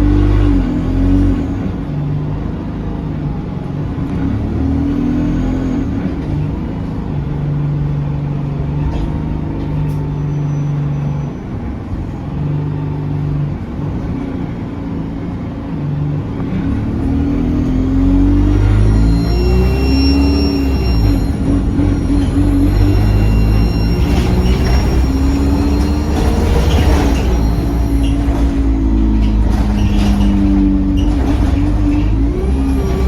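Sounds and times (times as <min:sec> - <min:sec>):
bus diesel engine accelerating: 0:00.0 - 0:33.0
faint high whistle: 0:10.1 - 0:11.6, 0:18.5 - 0:28.4.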